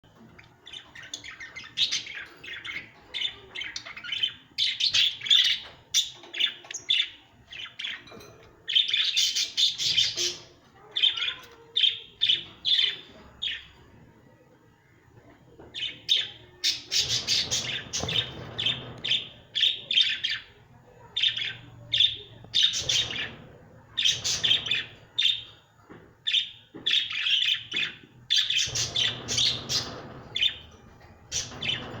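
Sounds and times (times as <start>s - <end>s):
lovebirds chirping and squawking: 0.0s - 32.0s.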